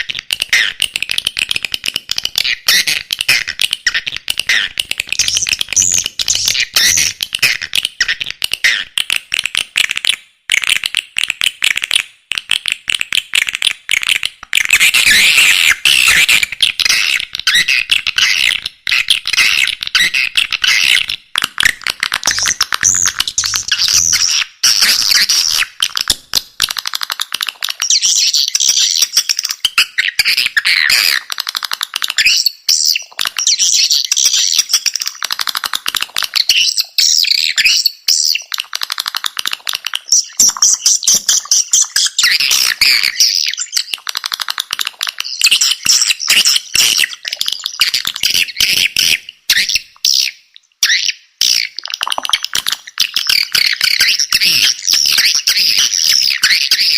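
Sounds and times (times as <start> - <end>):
swiftlet chirps and clicks: 31.2 - 50.3.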